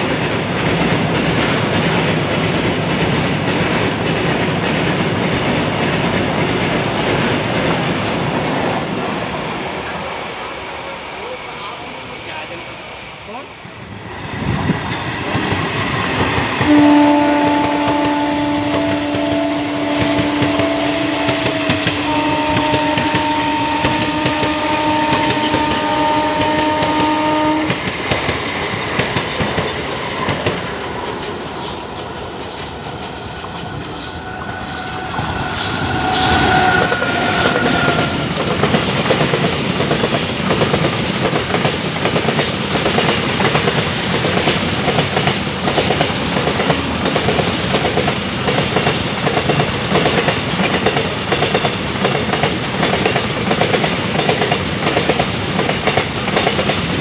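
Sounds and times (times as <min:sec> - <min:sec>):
train wheels clattering on rails: 0:00.0 - 0:09.9, 0:14.0 - 0:57.0
train horn blast: 0:16.6 - 0:27.8, 0:33.8 - 0:38.3.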